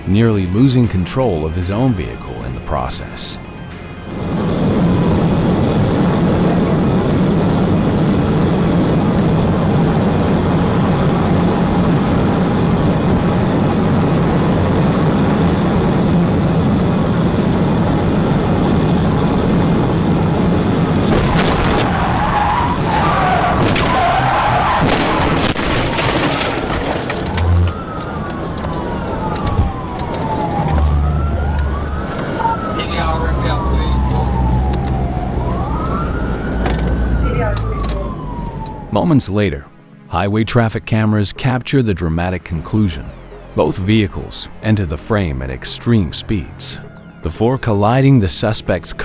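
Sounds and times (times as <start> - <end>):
car engine and road drone: 0.0 - 49.0
police siren wailing: 0.4 - 40.8, 41.7 - 49.0
tyre squeal: 22.0 - 29.2.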